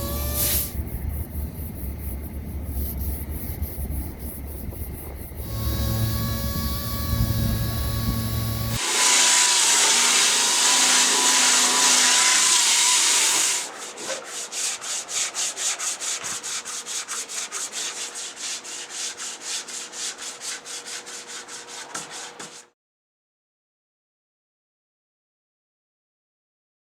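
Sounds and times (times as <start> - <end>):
rubbing strokes on a surface: 0.0 - 0.8, 12.5 - 22.7.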